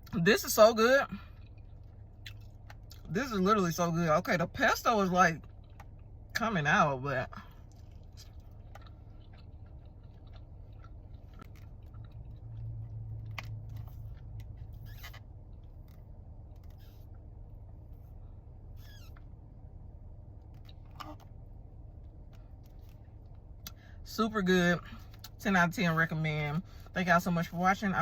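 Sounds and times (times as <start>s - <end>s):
low hum: 0.0s - 28.0s
person chewing food: 1.2s - 3.2s, 5.4s - 6.3s, 7.3s - 18.4s.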